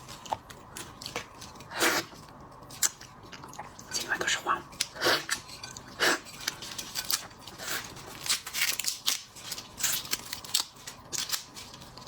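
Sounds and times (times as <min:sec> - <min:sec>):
shellfish shells cracking: 0:08.1 - 0:12.0.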